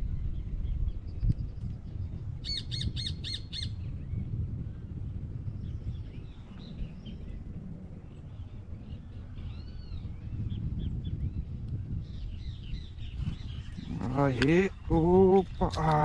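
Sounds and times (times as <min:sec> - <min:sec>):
steady low rumble: 0:00.0 - 0:16.0
birds chirping: 0:00.2 - 0:04.3, 0:05.5 - 0:16.0
bird harsh calls: 0:12.4 - 0:16.0.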